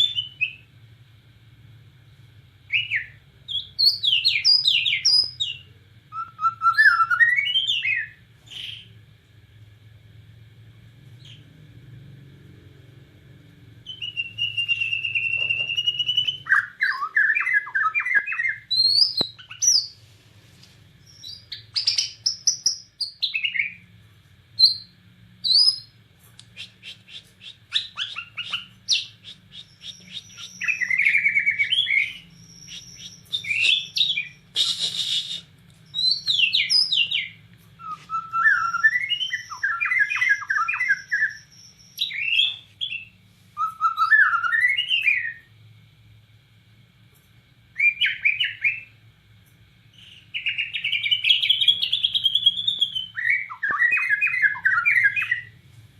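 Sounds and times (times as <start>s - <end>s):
bird singing whistles and trills: 0.0s - 0.7s, 2.7s - 9.0s, 13.8s - 20.0s, 21.0s - 23.8s, 24.6s - 25.9s, 26.5s - 45.5s, 47.7s - 49.0s, 49.9s - 55.6s
faint low hum: 0.0s - 55.9s.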